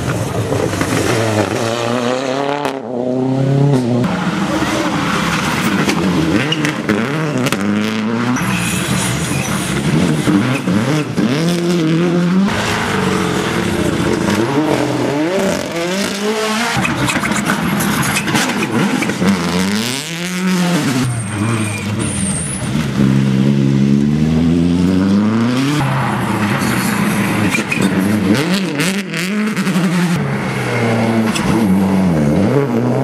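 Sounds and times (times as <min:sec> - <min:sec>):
rally car engine revving: 0:00.0 - 0:33.0.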